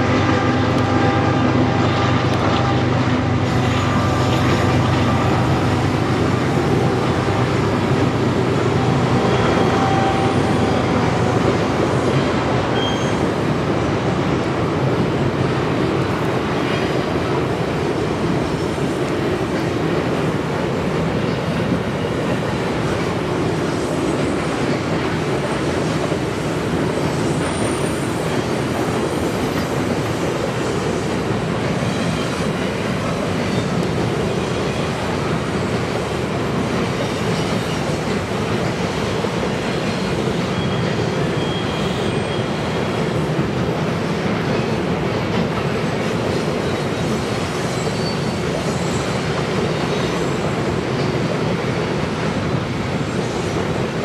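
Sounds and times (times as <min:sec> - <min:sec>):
train wheels rumbling on rails: 0:00.0 - 0:54.0
high wheel squeals: 0:03.5 - 0:11.4, 0:12.1 - 0:13.4, 0:39.7 - 0:43.2, 0:46.5 - 0:50.4.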